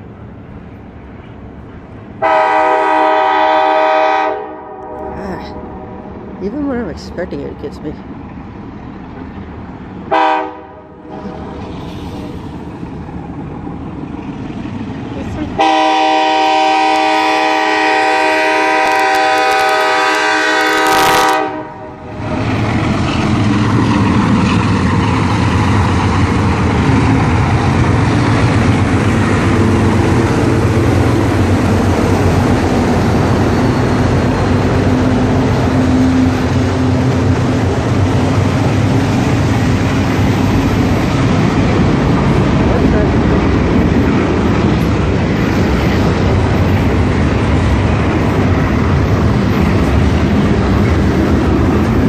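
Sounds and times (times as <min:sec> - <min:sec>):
freight train rumbling past: 0:00.0 - 0:52.0
train air horn: 0:02.2 - 0:05.3, 0:10.1 - 0:10.9, 0:15.6 - 0:22.0
wheels clattering on rail: 0:22.2 - 0:52.0.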